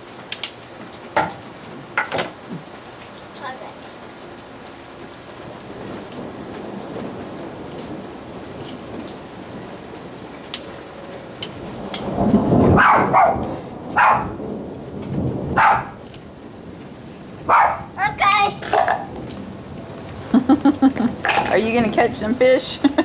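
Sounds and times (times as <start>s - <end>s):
steady rain falling: 0.0s - 23.0s
thunder rumbling: 0.8s - 23.0s
dog barking: 12.8s - 14.4s, 15.6s - 16.0s, 17.5s - 18.0s.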